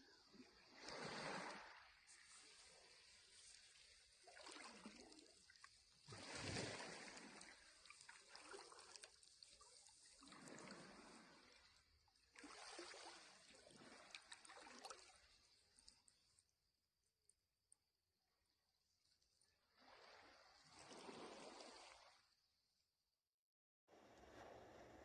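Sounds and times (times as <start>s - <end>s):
small waves washing onto shore: 0.2s - 15.8s.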